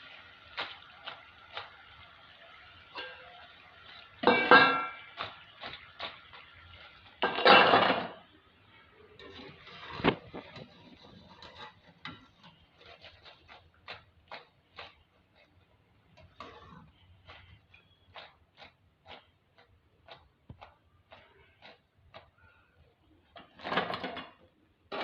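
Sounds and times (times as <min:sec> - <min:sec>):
metal utensils clattering on cookware: 0:02.8 - 0:08.3, 0:23.3 - 0:25.0.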